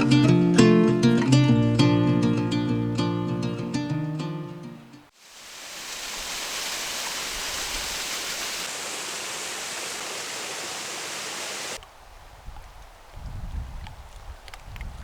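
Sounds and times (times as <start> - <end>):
waterfall rushing: 5.1 - 11.8.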